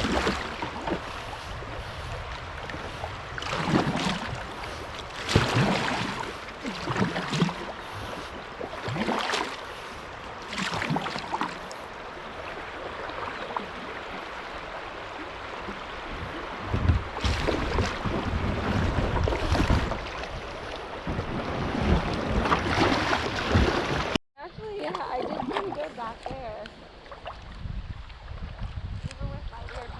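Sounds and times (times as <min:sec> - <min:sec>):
water rushing over rocks: 0:00.0 - 0:01.1
wind buffeting microphone: 0:00.0 - 0:08.7, 0:14.0 - 0:29.9
paddle strokes splashing: 0:00.0 - 0:28.8.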